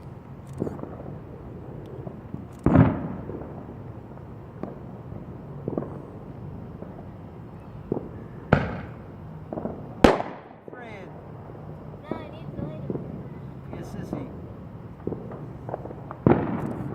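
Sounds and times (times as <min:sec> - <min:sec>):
firework bangs: 0:00.0 - 0:16.9
faint firework pops: 0:00.5 - 0:01.2, 0:01.8 - 0:03.7, 0:04.6 - 0:04.8, 0:05.6 - 0:06.0, 0:07.9 - 0:10.7, 0:12.6 - 0:14.3, 0:15.0 - 0:16.9.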